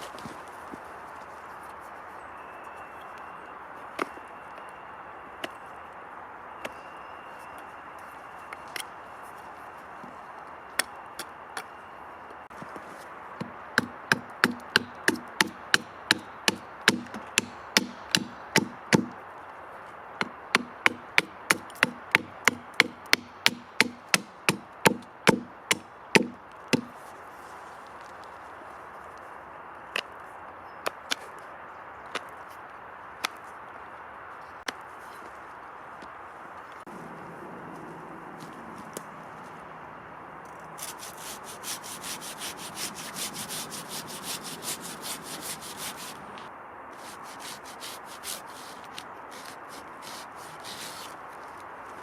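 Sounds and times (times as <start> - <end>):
axe chopping wood: 13.4 - 19.2, 20.2 - 27.0.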